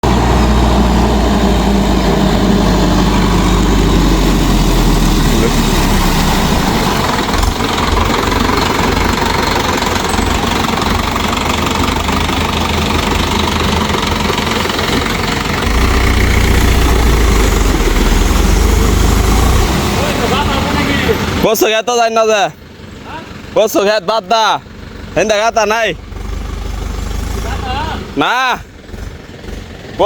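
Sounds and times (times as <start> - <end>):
diesel tractor engine clattering: 0.0 - 30.0.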